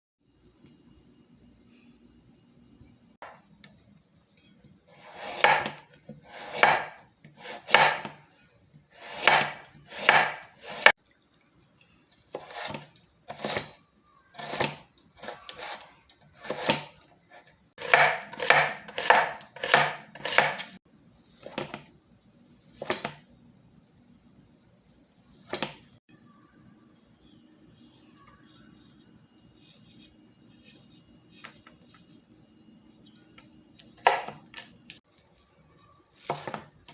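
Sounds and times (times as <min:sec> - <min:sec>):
knife slicing on cutting board: 0:05.0 - 0:08.2, 0:09.0 - 0:10.9, 0:17.8 - 0:20.7.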